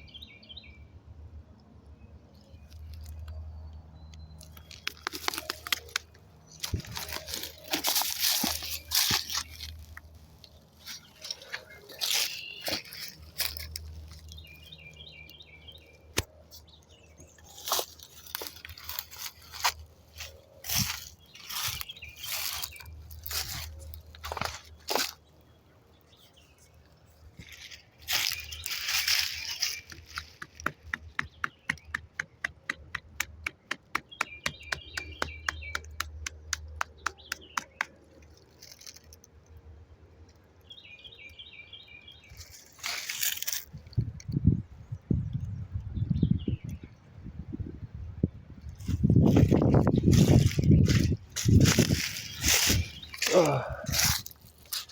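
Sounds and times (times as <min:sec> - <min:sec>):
bird chirps: 0:10.8 - 0:24.8, 0:27.4 - 0:38.1.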